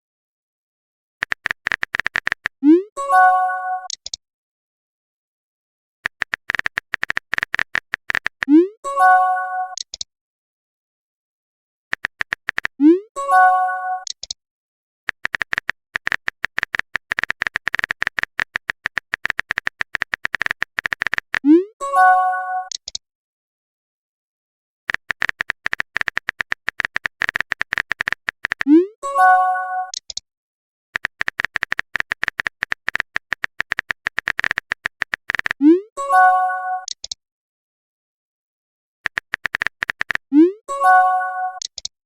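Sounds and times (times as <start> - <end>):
phone keyboard tap clicks: 1.2 - 2.6, 6.1 - 8.5, 12.0 - 12.7, 15.1 - 21.4, 31.0 - 35.6, 39.1 - 40.2
message tone chime: 40.7 - 41.6.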